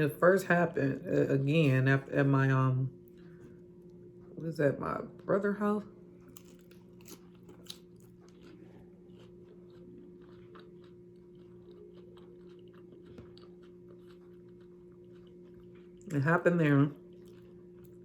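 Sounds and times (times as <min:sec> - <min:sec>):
low hum: 0:00.0 - 0:18.0
chewing nachos: 0:05.9 - 0:18.0
crunching chips: 0:06.2 - 0:16.2, 0:16.9 - 0:18.0.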